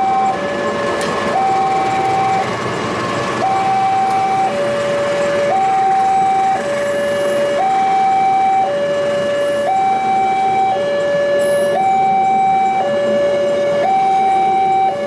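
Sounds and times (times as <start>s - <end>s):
continuous rumble: 0.0s - 7.2s
two-tone warning siren: 0.0s - 15.0s.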